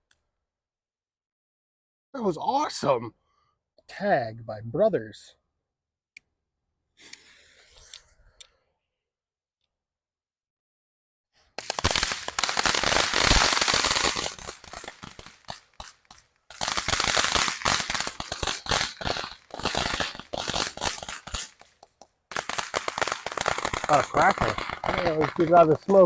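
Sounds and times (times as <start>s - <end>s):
firework crackling: 11.4s - 26.0s.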